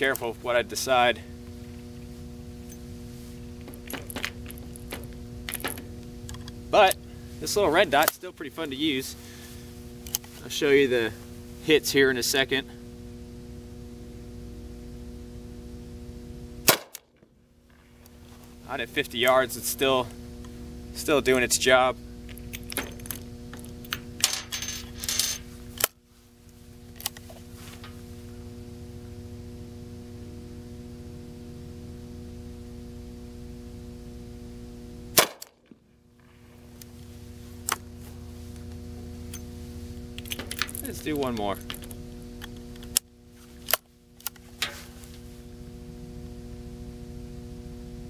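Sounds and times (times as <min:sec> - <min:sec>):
sharp gun snap: 0:16.6 - 0:17.0, 0:35.2 - 0:35.6.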